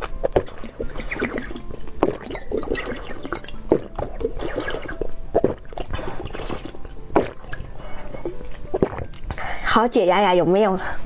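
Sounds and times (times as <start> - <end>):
jelly candy squishing and dripping: 0.0 - 9.6.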